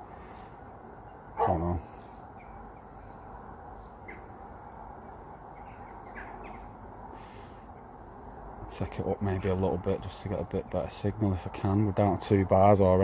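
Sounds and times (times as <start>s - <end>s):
steady low background noise: 0.0s - 13.0s
faint short bird calls: 5.5s - 7.7s.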